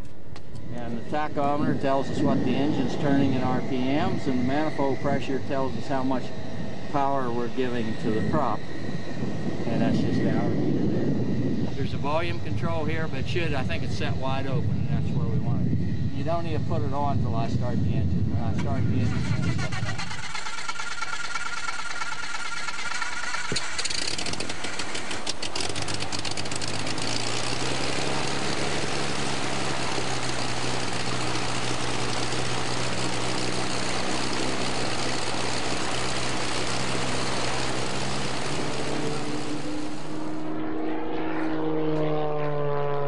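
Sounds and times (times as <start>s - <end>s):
piston aircraft engine idling: 0.0s - 40.5s
starter cranking with rapid clicking: 19.0s - 39.9s.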